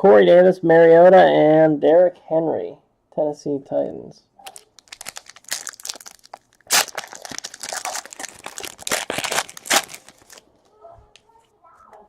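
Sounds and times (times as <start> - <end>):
plastic wrapper crinkling and tearing: 4.4 - 10.5.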